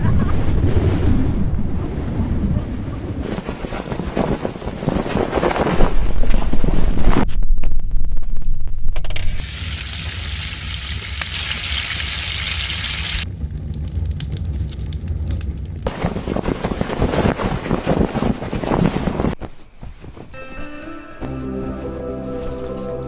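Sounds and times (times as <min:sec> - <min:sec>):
low wind rumble: 0:00.0 - 0:23.0
food sizzling over a campfire: 0:09.4 - 0:13.2.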